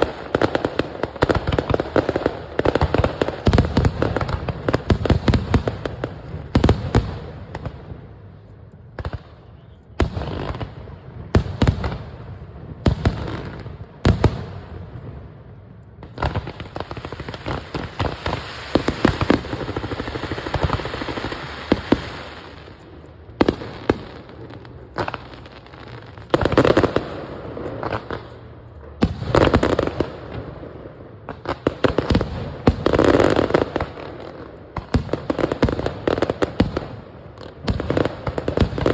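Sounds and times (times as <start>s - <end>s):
firework bangs with crackling: 0.0s - 38.9s.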